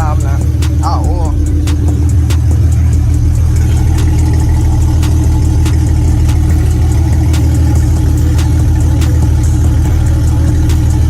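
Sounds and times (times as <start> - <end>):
car engine idling: 0.0 - 11.0
faint engine ticks: 0.0 - 11.0.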